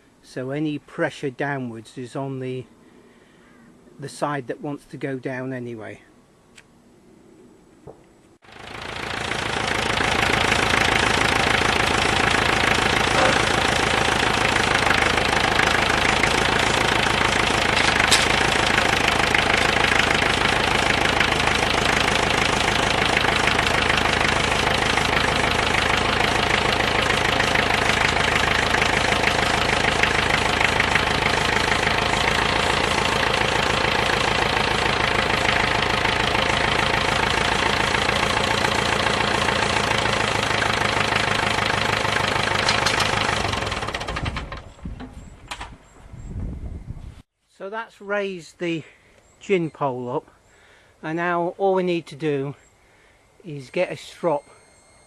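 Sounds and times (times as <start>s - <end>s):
tractor engine running: 8.4s - 46.2s.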